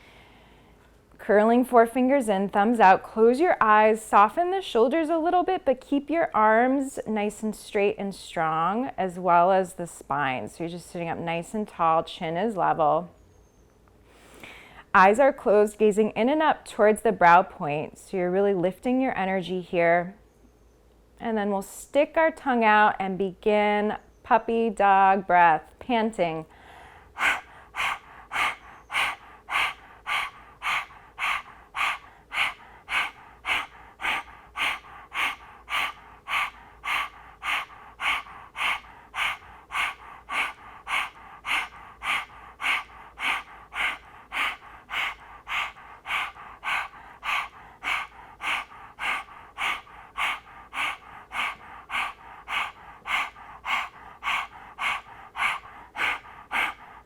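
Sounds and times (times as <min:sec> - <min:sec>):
woman panting rapidly: 0:00.0 - 0:00.8, 0:26.1 - 0:57.0.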